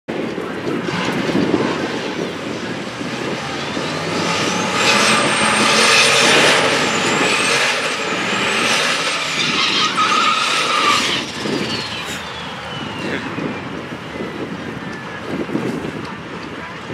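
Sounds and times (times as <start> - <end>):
drag cars at full throttle: 0.1 - 16.9
high engine whine: 0.1 - 16.9.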